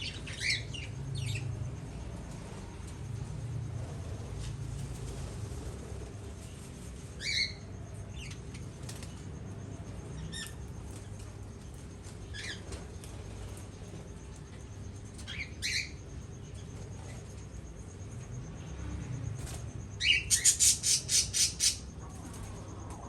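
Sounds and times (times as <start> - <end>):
small birds chirping: 0.0 - 2.0, 19.9 - 22.3
low background hum: 0.0 - 23.0.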